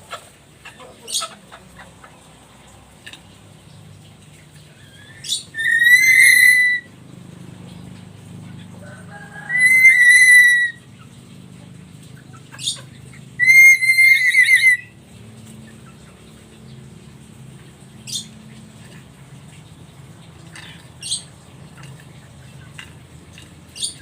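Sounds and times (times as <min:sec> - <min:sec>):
parrot whistles breaking into trill: 0:05.6 - 0:06.9, 0:09.5 - 0:10.8.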